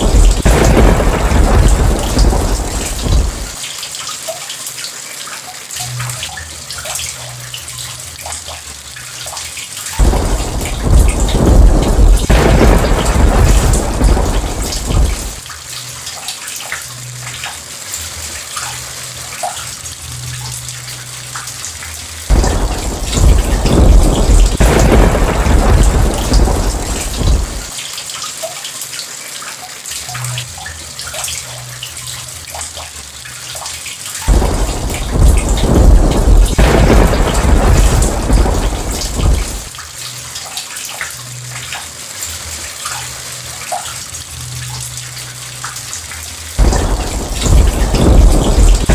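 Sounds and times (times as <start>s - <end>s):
thunder rolling: 0.0s - 3.6s, 10.0s - 15.4s, 22.3s - 27.7s, 34.3s - 39.8s, 46.6s - 48.9s
raindrops ticking: 0.0s - 29.0s, 29.6s - 48.9s
steady rain: 0.0s - 48.9s.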